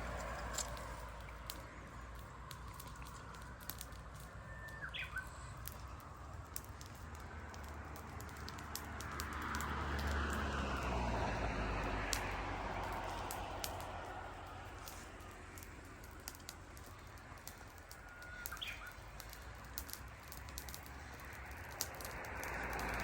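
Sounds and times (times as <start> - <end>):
campfire crackling: 0.0 - 23.0
bird chirp: 4.4 - 6.1, 18.1 - 19.0.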